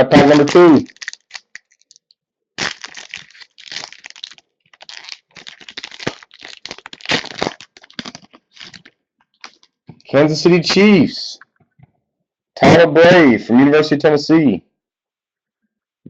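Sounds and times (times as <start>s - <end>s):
wrapper tearing and crinkling: 0.2s - 2.0s, 2.6s - 9.8s.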